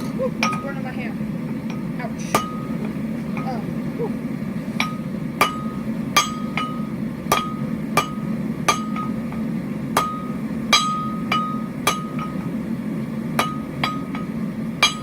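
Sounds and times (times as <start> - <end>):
hammer striking steel on anvil: 0.0 - 0.8, 1.7 - 2.8, 4.8 - 12.6, 13.4 - 15.0
steady low hum: 0.0 - 15.0.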